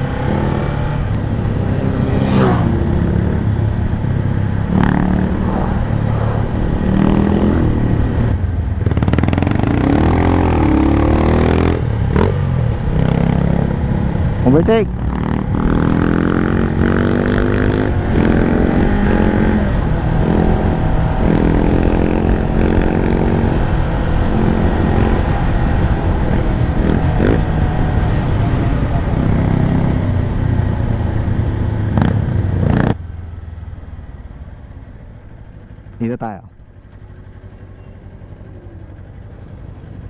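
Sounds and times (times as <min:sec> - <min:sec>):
motorcycle engine accelerating: 0:00.0 - 0:40.0
wind rush on microphone: 0:16.6 - 0:32.9.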